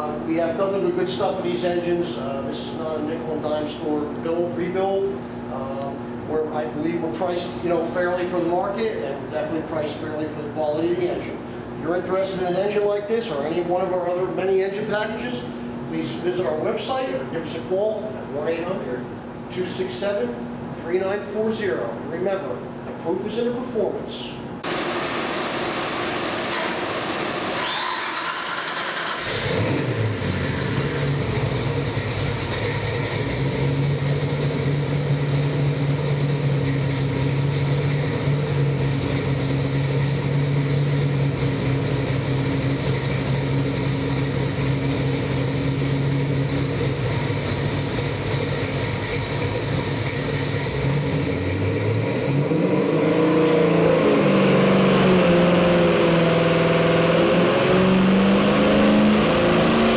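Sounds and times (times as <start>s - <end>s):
car engine running on a dyno: 24.6s - 59.9s.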